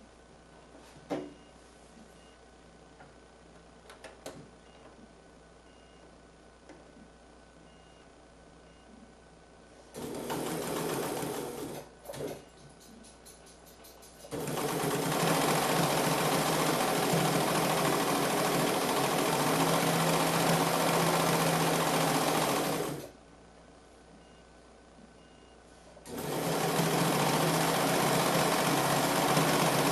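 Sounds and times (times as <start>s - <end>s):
sewing machine running: 10.0s - 12.4s, 14.3s - 23.1s, 26.1s - 29.9s.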